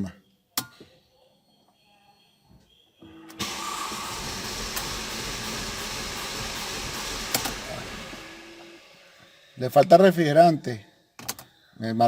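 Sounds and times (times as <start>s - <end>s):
starter cranking car engine: 3.4s - 8.7s
starter click: 7.3s - 7.6s.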